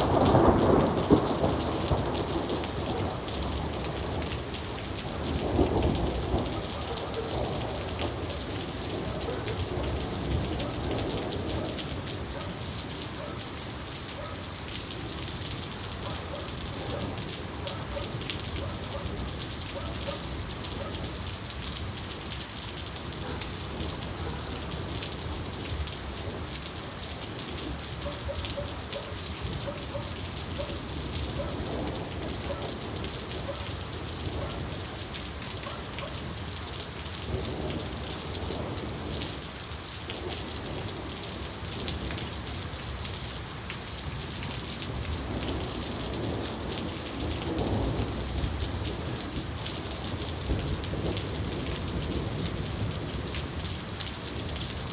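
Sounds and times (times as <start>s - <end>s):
low thunder rumbling: 0.0s - 12.3s
steady rain falling: 0.0s - 54.9s.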